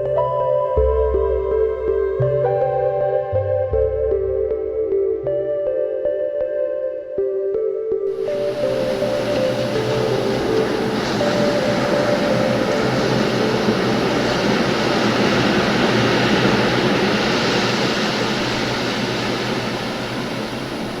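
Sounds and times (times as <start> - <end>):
held music tones: 8.1 - 21.0
ocean surf washing: 8.1 - 21.0.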